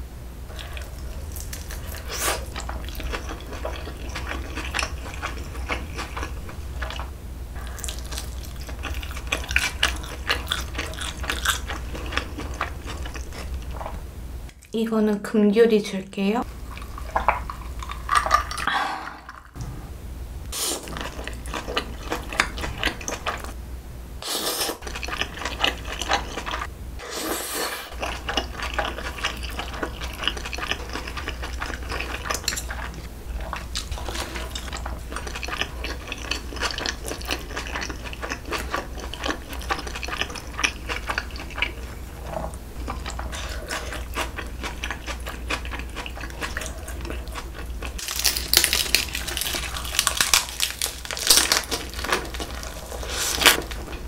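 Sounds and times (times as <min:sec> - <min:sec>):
wet chewing: 0:00.5 - 0:14.7, 0:24.6 - 0:26.7, 0:27.9 - 0:54.0.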